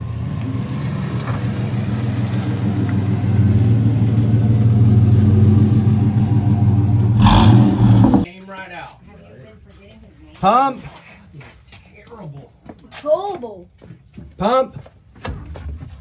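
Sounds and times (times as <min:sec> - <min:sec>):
truck engine idling: 0:01.4 - 0:08.2.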